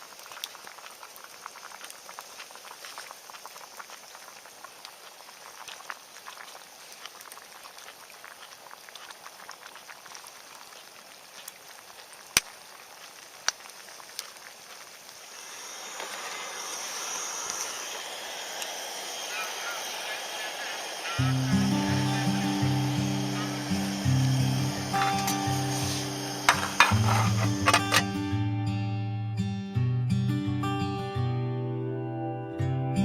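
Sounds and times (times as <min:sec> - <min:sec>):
campfire crackling: 0:00.0 - 0:28.4
rushing hiss: 0:12.0 - 0:28.1
sharp pops of fire: 0:12.2 - 0:15.2.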